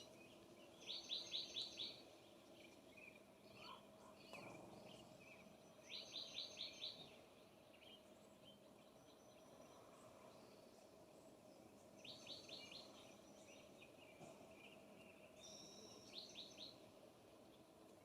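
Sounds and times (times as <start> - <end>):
faint songbird calls: 0.0 - 18.0.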